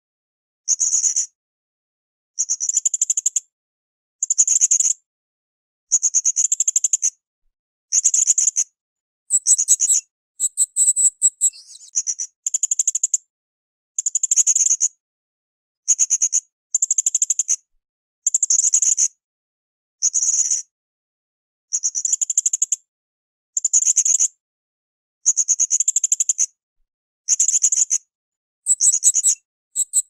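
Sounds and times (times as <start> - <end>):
parrot high-pitched trills: 9.3 - 11.9, 28.7 - 30.0
parrot twittering: 9.3 - 11.9, 28.7 - 30.0.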